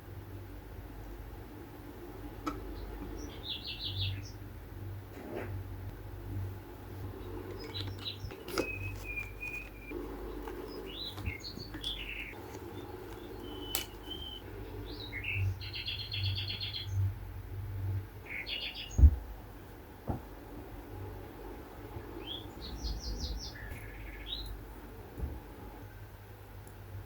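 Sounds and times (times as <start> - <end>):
small birds chirping: 2.3 - 4.5, 6.8 - 17.2, 17.9 - 19.2, 21.9 - 25.0
bird trill: 7.6 - 17.0.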